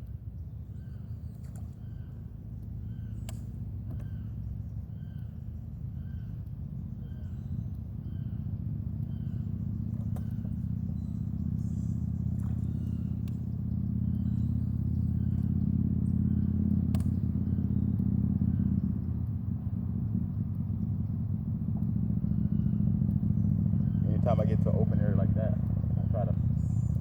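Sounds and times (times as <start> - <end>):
motor engine humming: 0.0 - 27.0
faint chirps: 0.4 - 18.9.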